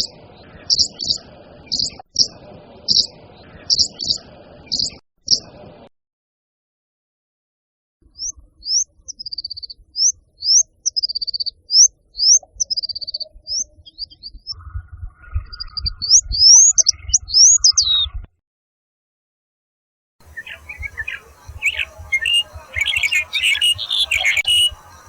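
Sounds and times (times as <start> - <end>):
songbird singing: 0.7 - 2.3, 3.7 - 5.0, 8.2 - 18.0, 20.2 - 25.0.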